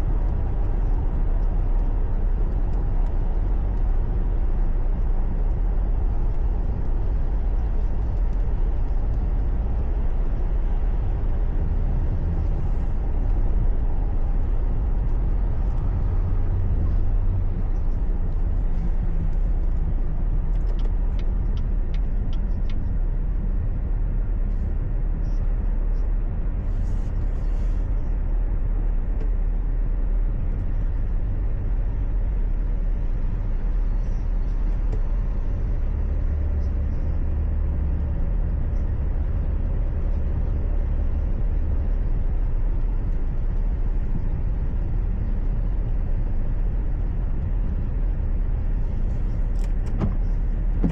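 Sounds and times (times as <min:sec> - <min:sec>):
car road and engine rumble: 0:00.0 - 0:50.9
faint light ticks: 0:00.1 - 0:11.2, 0:17.6 - 0:22.9.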